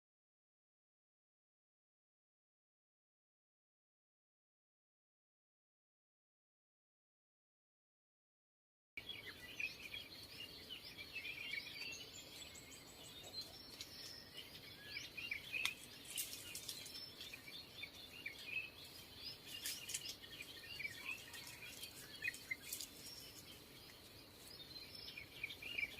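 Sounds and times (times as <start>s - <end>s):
small birds chirping: 9.0s - 25.9s.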